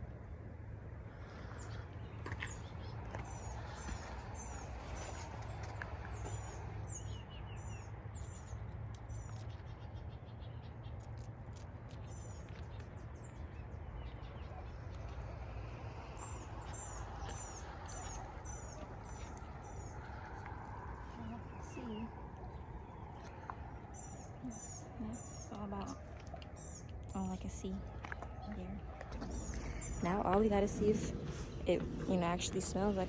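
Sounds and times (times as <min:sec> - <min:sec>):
low wind rumble: 0:00.0 - 0:33.0
bird chirping: 0:11.9 - 0:33.0.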